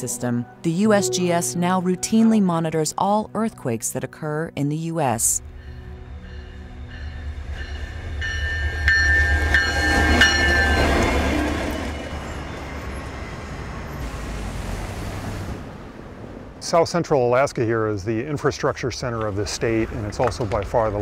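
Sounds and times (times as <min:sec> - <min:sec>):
locomotive engine and rail rumble: 0:05.2 - 0:21.0.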